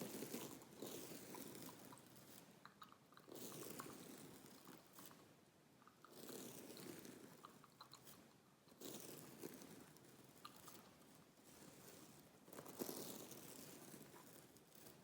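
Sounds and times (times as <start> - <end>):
gum chewing mouth sounds: 0.2 - 4.1, 6.7 - 8.2.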